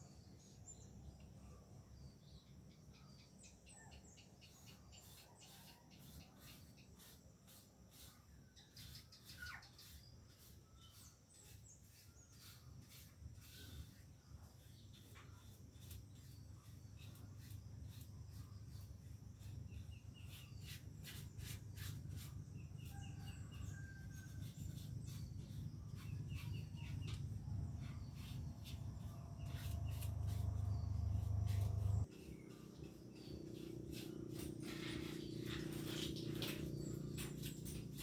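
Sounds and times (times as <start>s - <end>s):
birds chirping: 25.1s - 38.0s.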